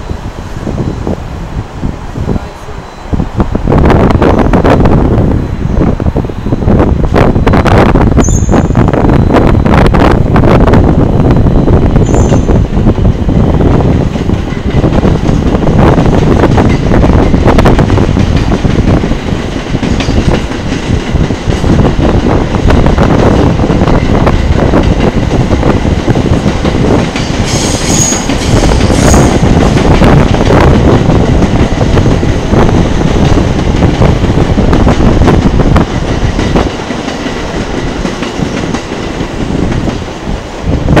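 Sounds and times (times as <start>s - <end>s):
train rumble: 0.0s - 41.0s
train wheels clattering: 13.8s - 40.8s.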